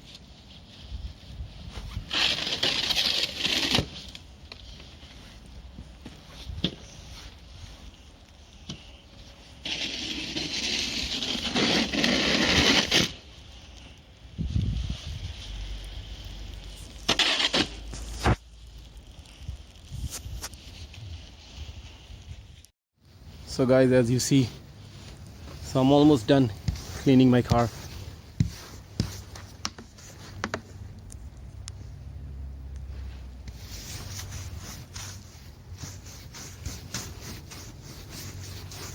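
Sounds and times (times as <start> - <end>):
snow being scraped: 1.6 - 4.2, 9.2 - 13.3, 15.1 - 18.4, 23.7 - 30.4, 33.1 - 38.9.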